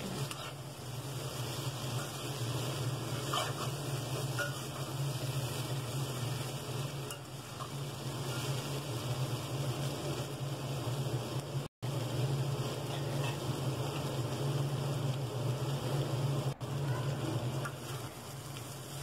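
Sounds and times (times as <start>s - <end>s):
spatula stirring and scraping: 0.0s - 9.5s, 12.5s - 14.2s
potatoes sizzling in oil: 0.0s - 19.0s.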